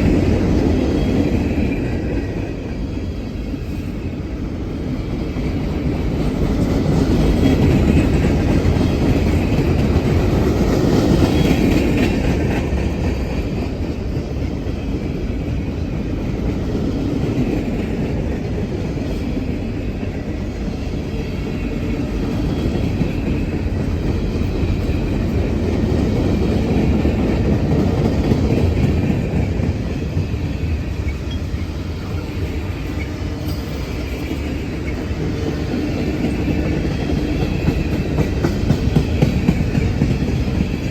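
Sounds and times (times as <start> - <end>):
freight train cars rumbling: 0.0 - 40.9.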